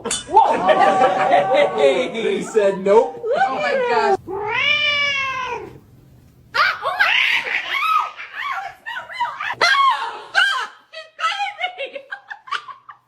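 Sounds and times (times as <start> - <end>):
cat meowing: 3.6 - 5.8.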